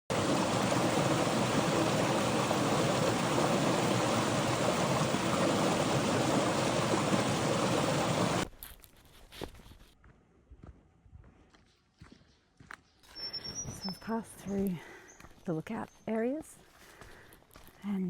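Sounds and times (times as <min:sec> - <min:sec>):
rushing water: 0:00.1 - 0:08.4.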